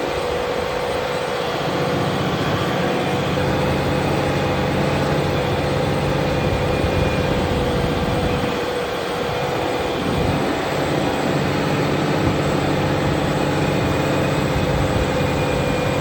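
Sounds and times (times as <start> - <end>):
steady whine: 0.0 - 16.0
tractor diesel engine under load: 0.0 - 16.0.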